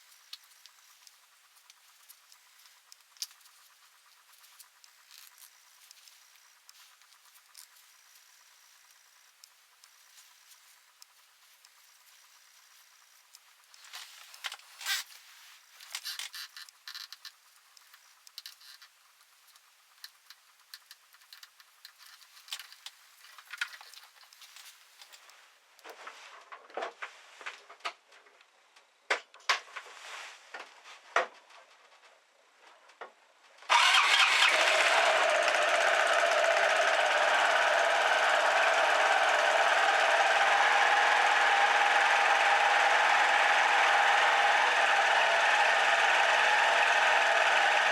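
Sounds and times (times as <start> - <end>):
scooter engine running: 33.7 - 47.9.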